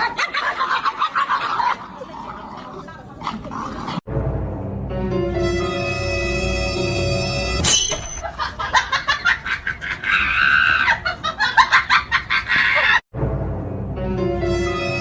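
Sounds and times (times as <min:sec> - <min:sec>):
background music: 0:04.1 - 0:07.8, 0:13.1 - 0:15.0.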